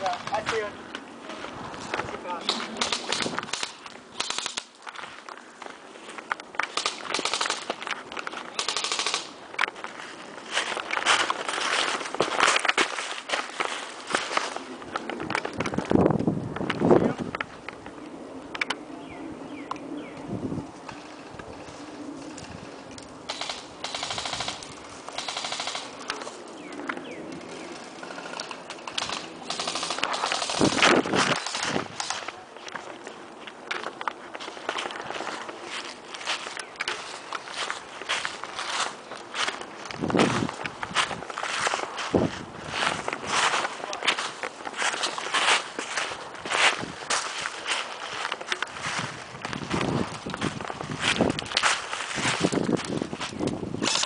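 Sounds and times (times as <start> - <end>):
airsoft rifles firing: 2.4 - 4.8, 6.6 - 7.9, 8.5 - 9.4, 23.3 - 26.3, 28.1 - 32.3, 53.8 - 54.0.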